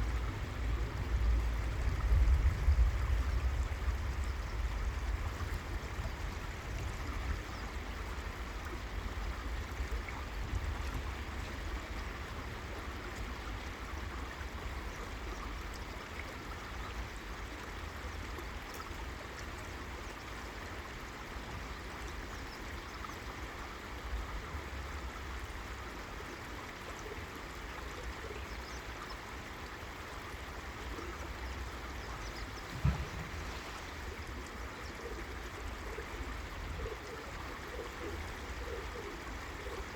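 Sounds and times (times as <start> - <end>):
river water rushing: 29.3 - 39.9
low thump: 32.6 - 34.0.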